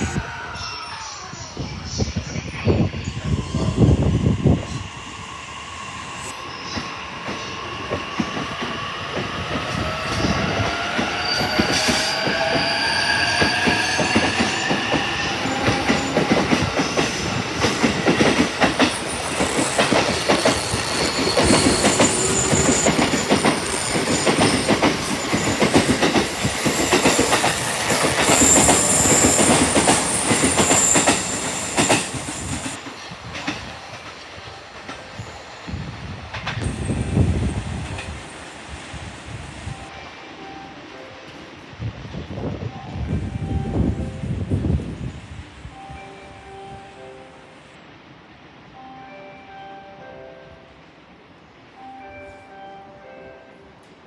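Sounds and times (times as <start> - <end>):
wheels clacking over rail joints: 6.8 - 35.1.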